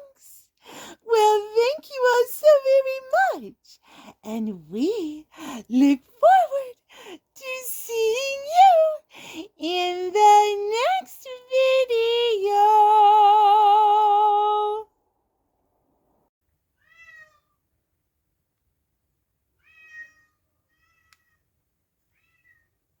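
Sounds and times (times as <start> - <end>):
cat meowing: 16.8 - 17.6, 19.6 - 21.4, 22.1 - 22.7.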